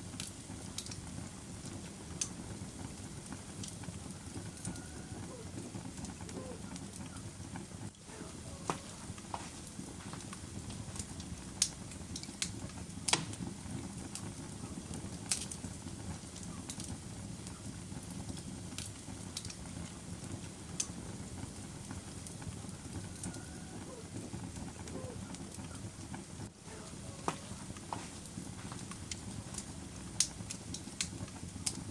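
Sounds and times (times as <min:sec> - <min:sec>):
wood fire crackling: 0:00.0 - 0:31.9.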